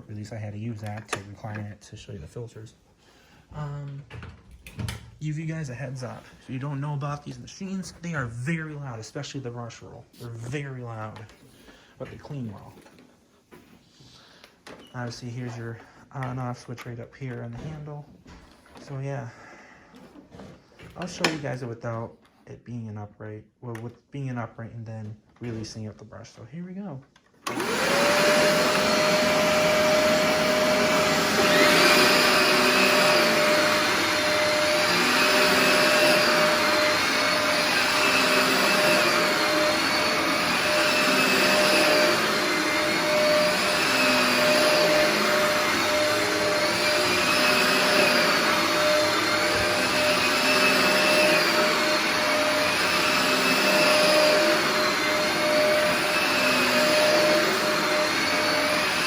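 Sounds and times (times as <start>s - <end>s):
vacuum brush roll: 5.3s - 13.9s, 27.4s - 59.0s
upright vacuum motor whining: 27.4s - 59.0s.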